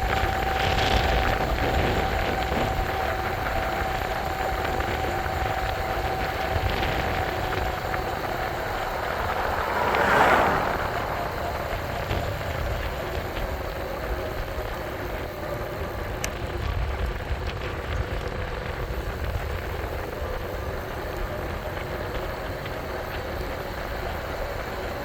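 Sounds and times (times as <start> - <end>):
faint ticks: 0.0 - 25.0
road noise: 0.0 - 25.0
wind rumble on microphone: 0.0 - 25.0.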